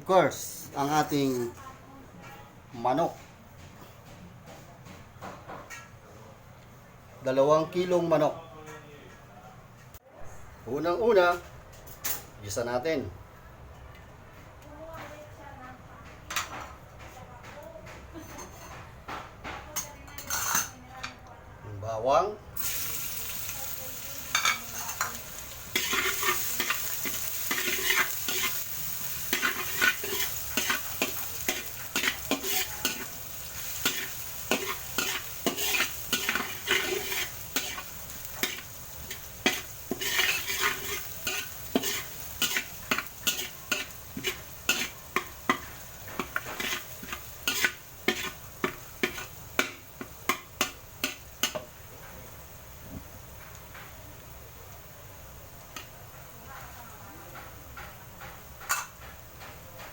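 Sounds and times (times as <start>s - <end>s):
garlic sizzling in oil: 22.6s - 59.9s
spoon scraping and knocking a pan: 24.3s - 51.7s.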